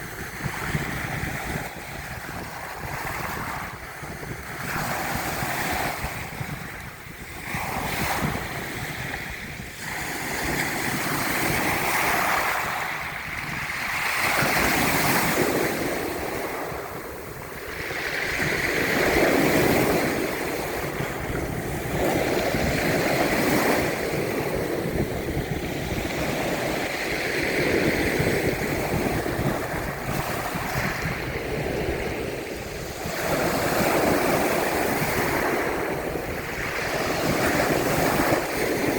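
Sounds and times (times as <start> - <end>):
sea waves breaking on shore: 0.0 - 38.9
wind on microphone: 0.0 - 38.9.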